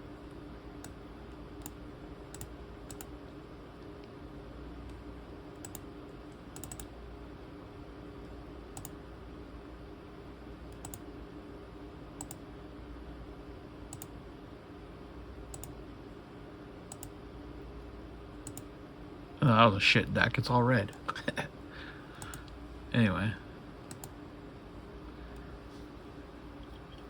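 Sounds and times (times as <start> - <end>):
steady low hum: 0.0 - 27.0
computer mouse clicks: 1.6 - 3.1, 5.6 - 6.9, 8.7 - 9.0, 10.7 - 11.0, 12.2 - 12.4, 13.9 - 14.1, 15.5 - 15.8, 16.9 - 17.2, 18.4 - 18.7, 22.2 - 22.6, 23.9 - 24.2.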